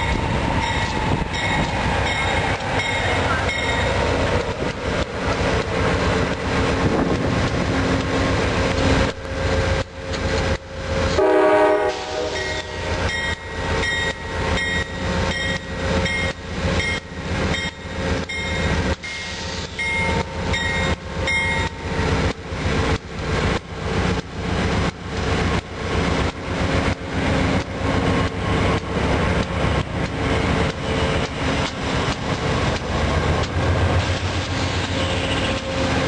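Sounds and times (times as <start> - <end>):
locomotive bell ringing: 0.0 - 4.0, 12.4 - 19.2, 19.8 - 21.9
train wheels on rails: 0.0 - 36.0
locomotive horn blast: 11.1 - 13.0, 34.9 - 35.7.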